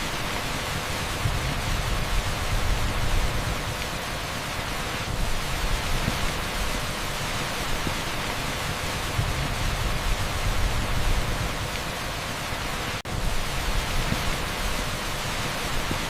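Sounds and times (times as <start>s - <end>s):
heavy rain on asphalt: 0.0s - 16.0s.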